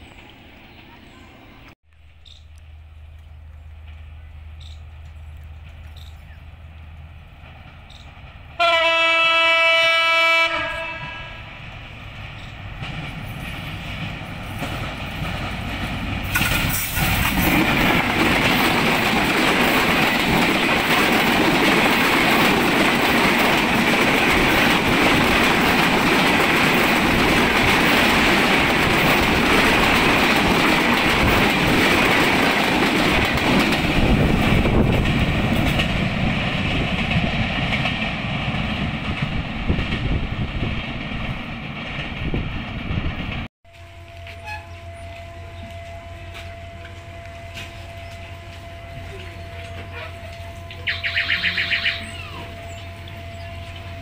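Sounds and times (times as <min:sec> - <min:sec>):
diesel locomotive rumble: 0:00.0 - 0:54.0
train wheels clattering on rails: 0:03.8 - 0:09.6, 0:11.6 - 0:43.5
locomotive horn blast: 0:08.6 - 0:11.5, 0:43.7 - 0:54.0.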